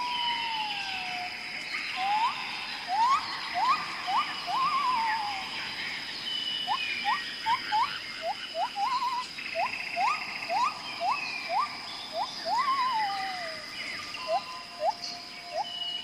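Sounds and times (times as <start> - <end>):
bird wavering falling call: 1.8 - 5.6, 6.6 - 13.6
bird whistling short rising notes: 1.9 - 5.4
steady high-pitched tone: 1.9 - 5.8.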